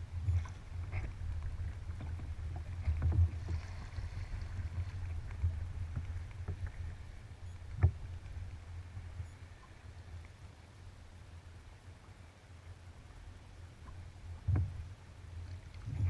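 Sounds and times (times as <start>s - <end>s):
paddle strokes: 0.0s - 10.2s
steady low rumble: 0.0s - 16.0s
water lapping against hull: 0.0s - 16.0s.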